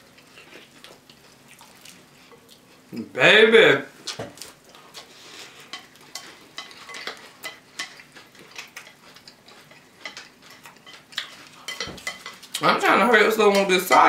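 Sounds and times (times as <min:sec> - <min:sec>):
spoons clinking against bowls: 0:05.7 - 0:08.0, 0:08.8 - 0:14.0.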